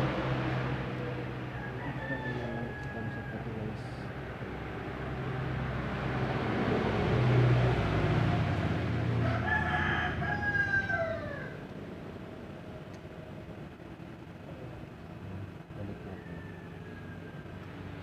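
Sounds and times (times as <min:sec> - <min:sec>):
rooster crowing: 0:01.2 - 0:04.2, 0:09.0 - 0:11.7, 0:15.9 - 0:18.0.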